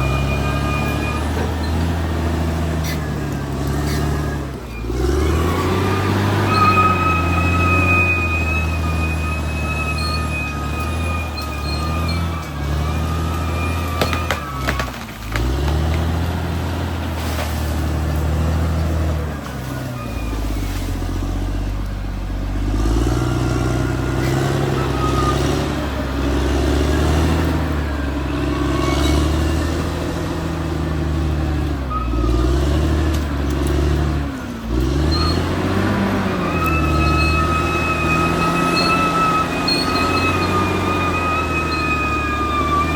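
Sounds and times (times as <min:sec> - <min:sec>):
high squealing whine: 0:00.0 - 0:02.1, 0:02.7 - 0:14.8, 0:36.2 - 0:42.9
bulldozer diesel engine lugging: 0:00.0 - 0:42.9.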